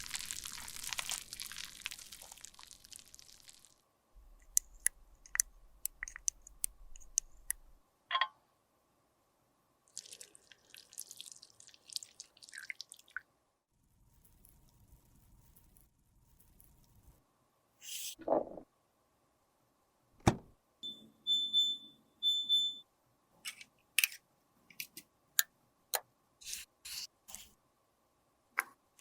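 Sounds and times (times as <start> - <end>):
sharp clicks and taps: 4.2 - 8.3.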